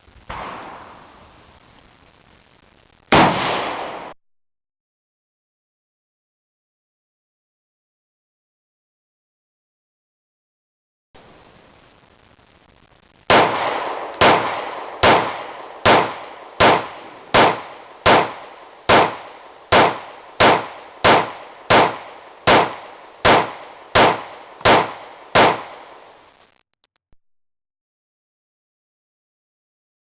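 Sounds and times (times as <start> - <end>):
pistol shots: 0.3 - 1.2, 3.1 - 4.2, 13.3 - 26.1.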